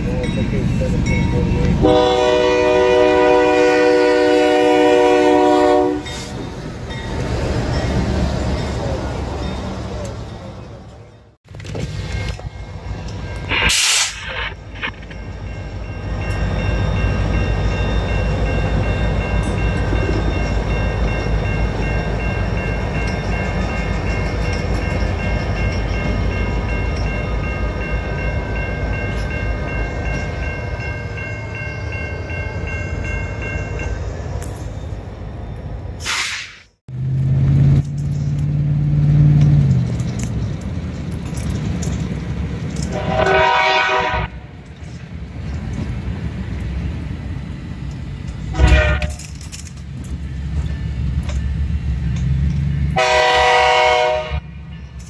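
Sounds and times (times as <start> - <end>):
crossing signal ringing: 0.0 - 35.9
freight train rumbling: 0.0 - 55.0.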